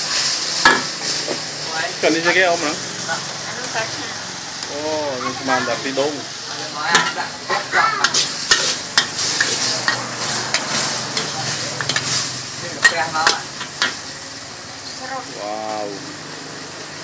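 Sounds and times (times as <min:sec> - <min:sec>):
food sizzling in a pan: 0:00.0 - 0:17.0
metal utensil clinking and scraping: 0:06.8 - 0:14.0.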